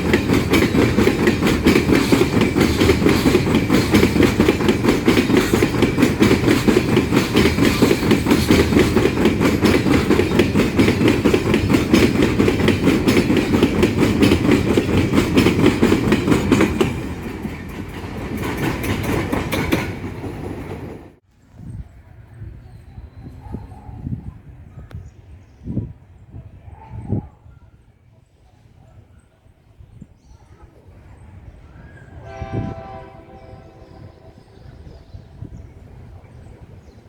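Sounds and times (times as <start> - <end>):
train rumble: 0.0 - 21.2, 30.6 - 37.0
wagon wheels clacking over rail joints: 0.0 - 21.2.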